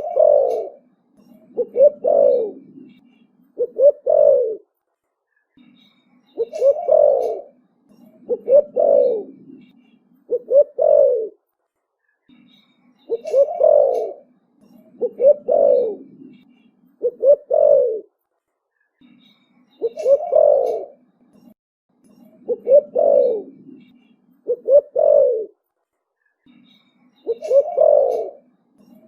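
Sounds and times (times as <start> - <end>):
dove cooing: 0.0 - 3.0, 3.6 - 4.7, 6.4 - 11.4, 13.1 - 14.3, 14.9 - 16.4, 17.0 - 18.1, 19.8 - 21.0, 22.4 - 25.6, 27.3 - 28.5.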